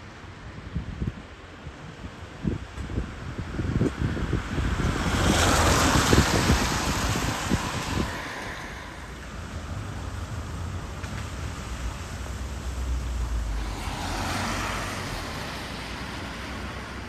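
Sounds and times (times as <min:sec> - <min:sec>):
road traffic on wet street: 0:00.0 - 0:17.0
vehicle tyre noise passing: 0:02.6 - 0:17.0.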